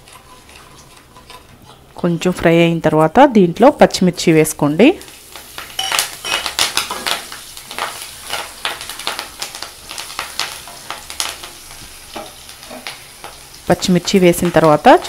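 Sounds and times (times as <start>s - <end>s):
wooden spatula scraping: 0.0s - 2.3s
chillies sizzling in oil: 0.0s - 15.0s.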